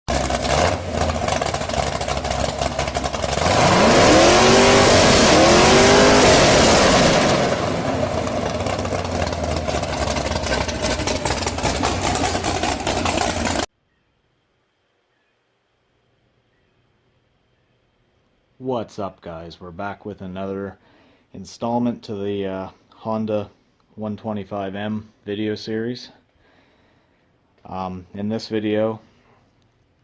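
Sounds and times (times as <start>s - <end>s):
vehicle engine revving: 0.1s - 13.7s.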